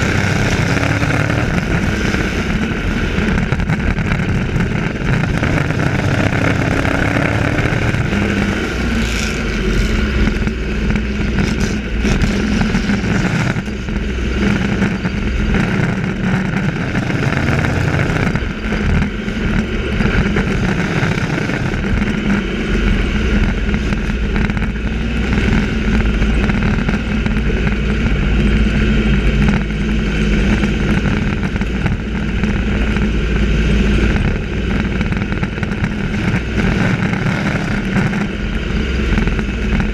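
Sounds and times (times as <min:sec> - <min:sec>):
race truck engines: 0:00.0 - 0:39.9.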